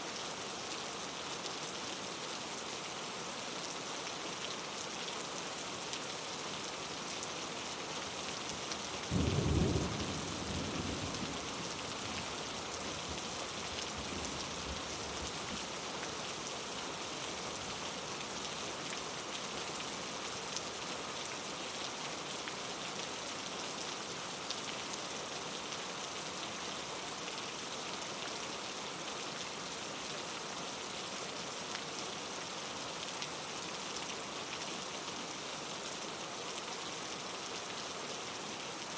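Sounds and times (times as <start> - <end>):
heavy rain hissing: 9.1 - 15.4.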